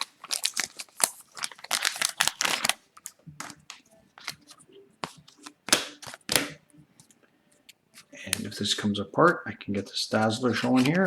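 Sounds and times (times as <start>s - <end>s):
trading cards rustling: 0.0s - 7.2s
sharp clicks and snaps of cards: 5.4s - 6.6s.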